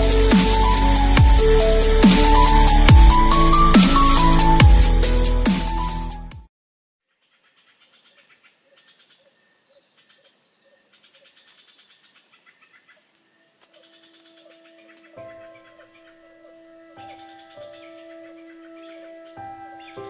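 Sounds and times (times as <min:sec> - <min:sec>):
electronic music: 0:00.0 - 0:06.5
insect chirping: 0:07.0 - 0:20.0.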